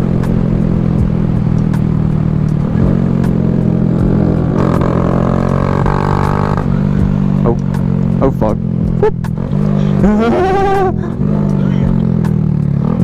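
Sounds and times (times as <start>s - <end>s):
small motorcycle engine revving: 2.0s - 8.1s, 8.8s - 13.0s.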